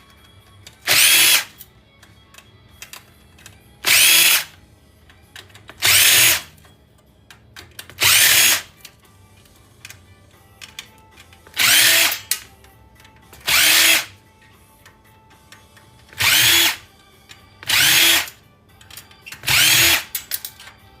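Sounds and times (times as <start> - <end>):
cordless drill spinning: 0.9 - 1.5, 3.9 - 4.5, 5.8 - 6.5, 8.0 - 8.7, 11.6 - 12.3, 13.5 - 14.1, 16.2 - 16.8, 17.6 - 18.3, 19.5 - 20.1.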